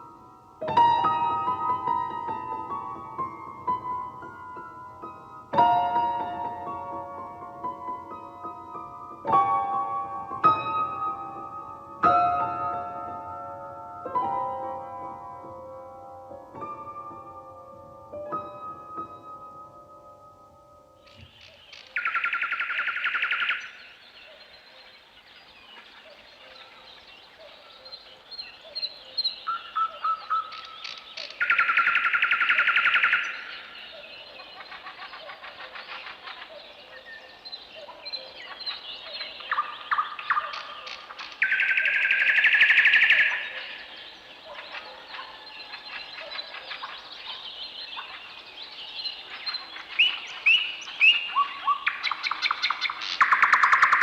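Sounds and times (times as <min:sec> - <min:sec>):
bird chirps and calls: 0:21.0 - 0:54.0.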